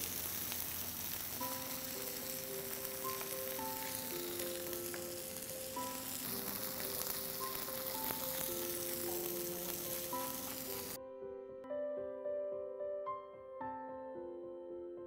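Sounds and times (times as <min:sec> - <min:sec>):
chicken sizzling in a grill pan: 0:00.0 - 0:11.0
soft background music: 0:00.2 - 0:15.0.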